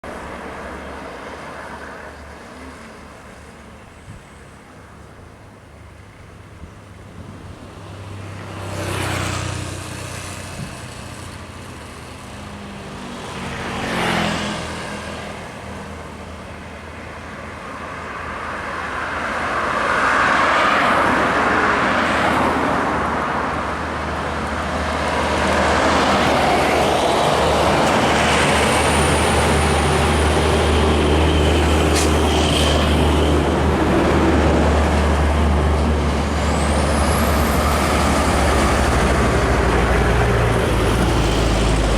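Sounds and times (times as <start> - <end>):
bus diesel engine: 0.0 - 13.9, 14.5 - 41.9
road traffic: 0.0 - 41.9
vehicle passing: 19.5 - 41.9.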